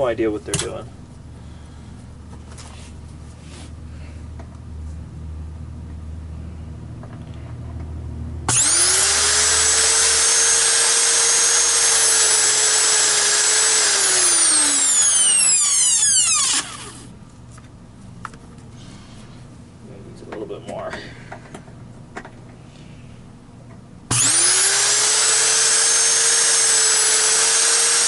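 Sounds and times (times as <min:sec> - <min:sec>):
motor whine: 0:08.5 - 0:17.2, 0:24.1 - 0:28.0.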